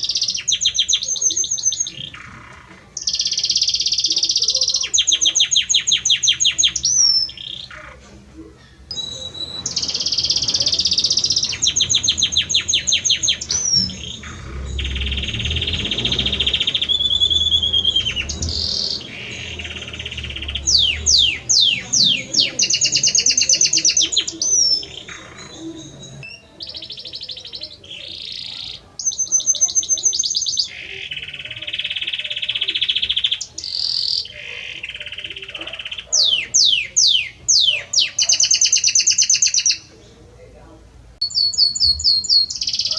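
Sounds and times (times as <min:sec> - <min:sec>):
canary singing trills: 0:00.0 - 0:40.2, 0:41.2 - 0:42.9
falling whistles: 0:08.9 - 0:26.5.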